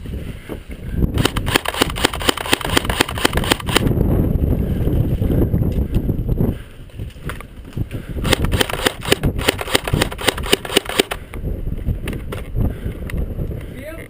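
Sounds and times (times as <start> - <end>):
airsoft rifle shots: 1.2 - 3.9, 8.2 - 11.2.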